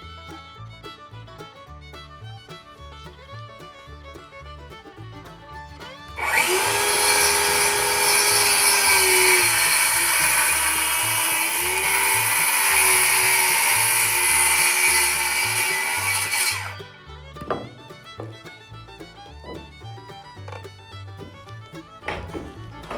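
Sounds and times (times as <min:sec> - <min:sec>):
faint fiddle music: 0:00.0 - 0:22.9
power tool cutting wood: 0:06.2 - 0:18.3.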